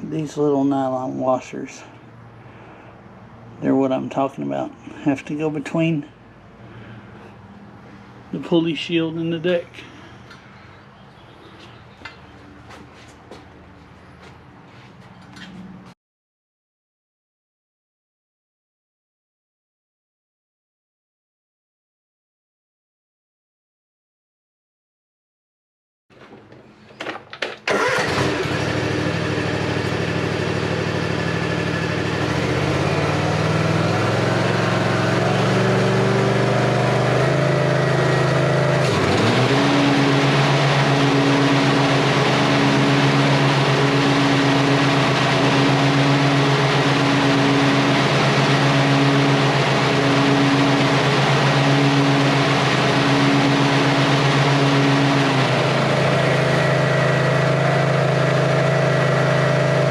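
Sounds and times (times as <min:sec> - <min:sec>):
mower engine cranking and running: 0:26.2 - 0:59.9.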